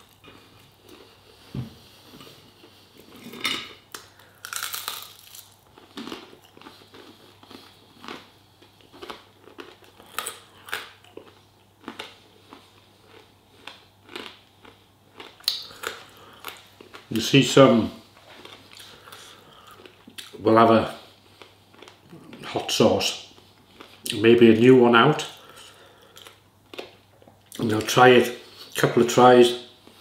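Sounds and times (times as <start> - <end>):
crunchy chewing: 0.0 - 17.1.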